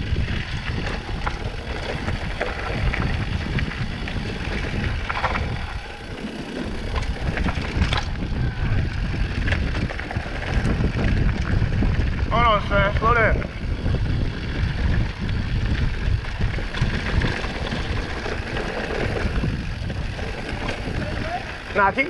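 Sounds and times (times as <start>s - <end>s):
wind rush on microphone: 0.0s - 22.0s
bike clicks and knocks: 0.2s - 11.9s, 14.4s - 22.0s.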